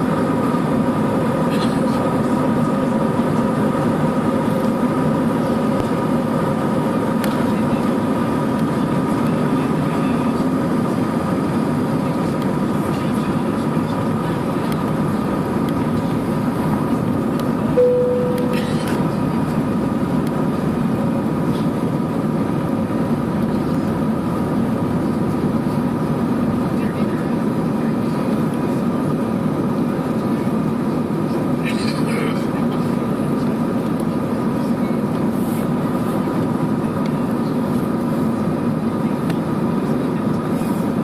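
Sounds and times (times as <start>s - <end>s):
steady whine: 0.0s - 31.7s
jet engine cabin roar: 0.0s - 41.0s
short single tone: 17.8s - 18.7s.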